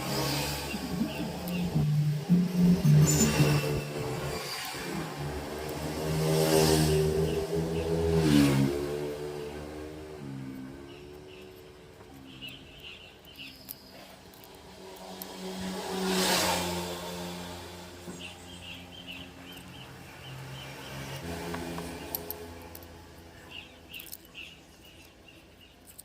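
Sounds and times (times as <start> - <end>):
vehicle passing: 0.0 - 12.9, 13.9 - 24.2
vehicle engine running: 0.0 - 25.0
bird chirps: 0.2 - 4.6, 10.8 - 14.4, 18.1 - 21.2, 23.4 - 26.0.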